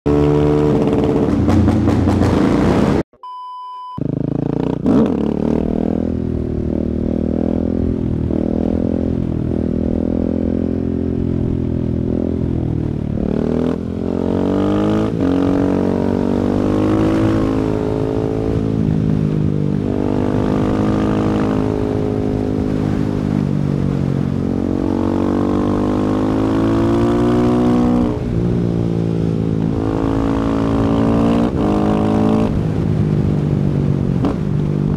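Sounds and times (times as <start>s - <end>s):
motorcycle engine accelerating: 0.0s - 3.0s, 4.0s - 34.9s
steady beep: 3.2s - 4.0s.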